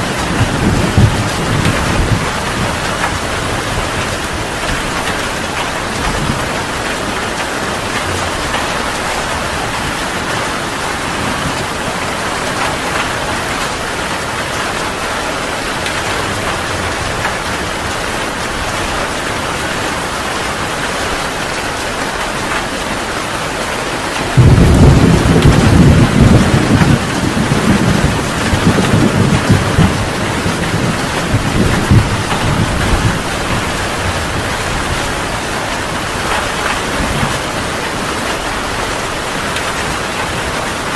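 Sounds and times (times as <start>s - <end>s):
thunderclap rumbling: 0.0s - 19.2s, 24.2s - 40.6s
heavy rain: 0.0s - 40.9s.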